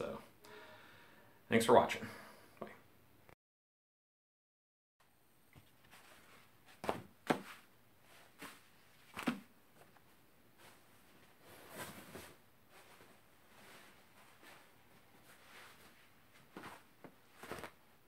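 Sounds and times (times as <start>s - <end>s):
handling knocks and thuds: 6.8s - 7.6s.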